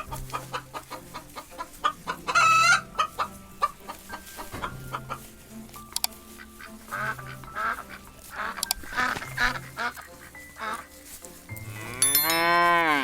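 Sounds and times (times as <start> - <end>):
ducks quacking: 0.0 - 12.0
light background music: 0.0 - 13.0
cow mooing: 11.7 - 13.0.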